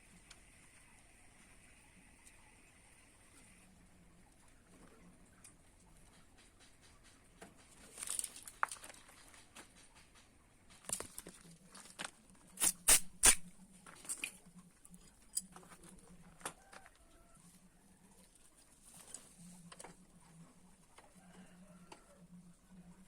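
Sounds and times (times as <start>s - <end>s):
scrapes and clicks of hand work: 4.8s - 17.0s.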